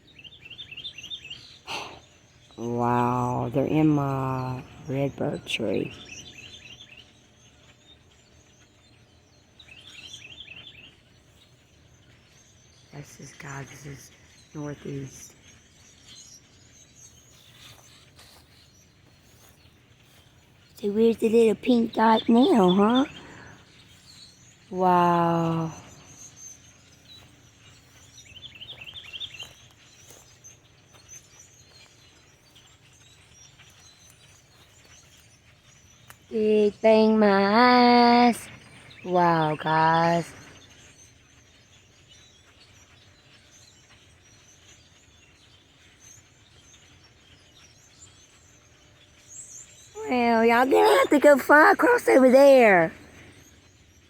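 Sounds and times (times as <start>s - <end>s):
outdoor background noise: 0.0s - 54.0s
small birds chirping: 0.0s - 54.0s.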